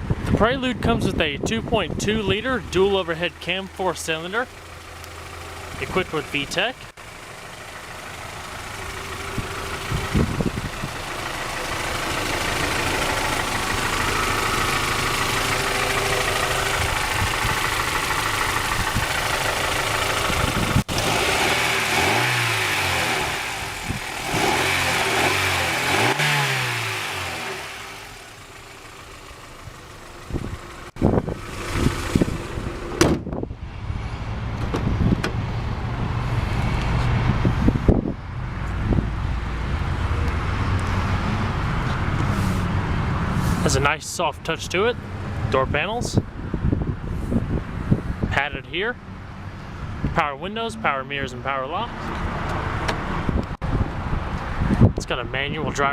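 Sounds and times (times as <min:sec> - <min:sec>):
car engine running and revving: 0:04.3 - 0:43.8.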